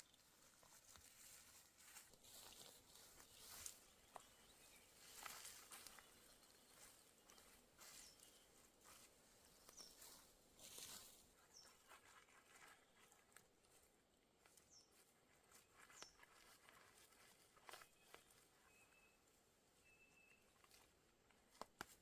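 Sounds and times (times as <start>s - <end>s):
bird chirping: 2.2s - 12.0s, 14.7s - 15.0s, 17.6s - 19.2s, 19.8s - 20.7s.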